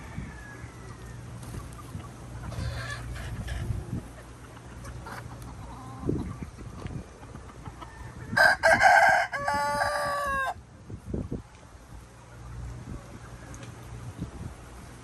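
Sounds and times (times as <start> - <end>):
rooster crowing: 0.0 - 1.3, 7.8 - 10.6
chicken clucking: 0.6 - 10.4.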